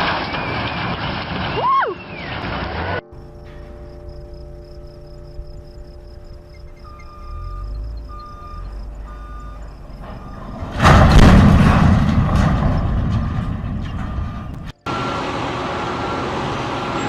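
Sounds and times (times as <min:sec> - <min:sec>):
loud demolition boom rumbling: 0:00.0 - 0:03.8, 0:07.1 - 0:17.0
short warning tones: 0:06.4 - 0:10.6.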